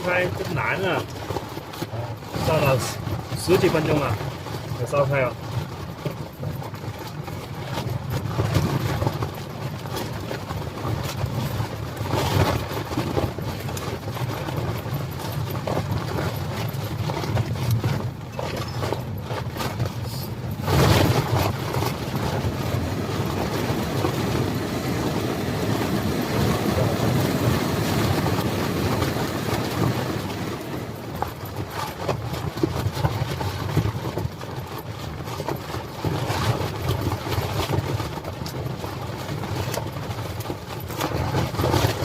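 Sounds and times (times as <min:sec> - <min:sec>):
tent fabric shaking: 0:00.0 - 0:42.0
strong wind gusts: 0:15.2 - 0:31.9.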